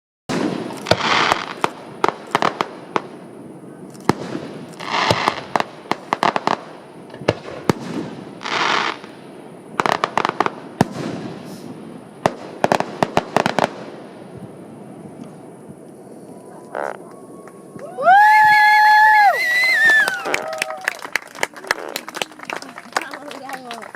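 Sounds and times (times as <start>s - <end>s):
fireworks hissing bursts: 0.3s - 17.0s
fireworks bangs: 0.3s - 23.9s.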